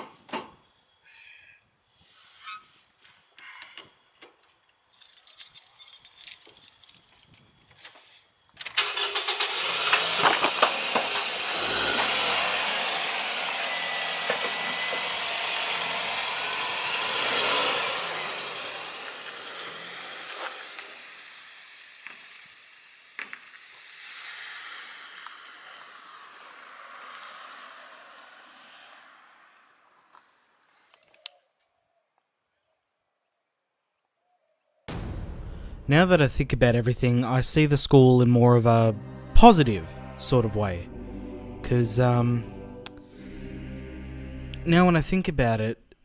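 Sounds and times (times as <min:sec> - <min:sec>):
keys jangling: 0:04.8 - 0:08.8
car engine starting and driving off: 0:08.7 - 0:13.6.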